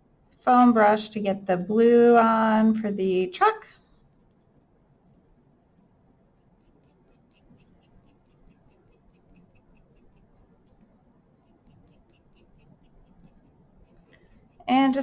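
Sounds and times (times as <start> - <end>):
foam brush dabbing on cardboard: 6.4 - 14.7.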